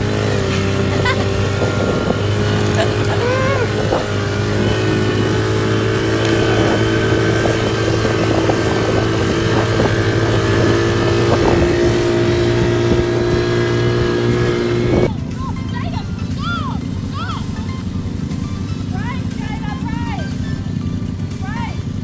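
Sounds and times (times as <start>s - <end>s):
quad bike engine running: 0.0s - 22.0s.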